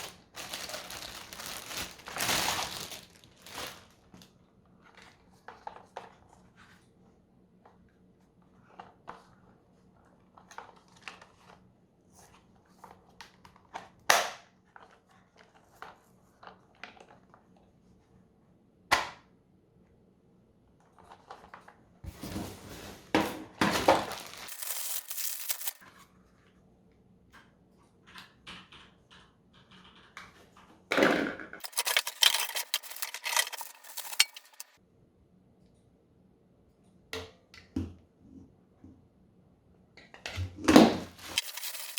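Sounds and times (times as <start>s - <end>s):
packaging rustling and crinkling: 0.0s - 4.3s, 22.1s - 25.8s, 31.6s - 34.8s, 41.0s - 41.9s
plastic parts clicking and knocking: 31.6s - 34.7s.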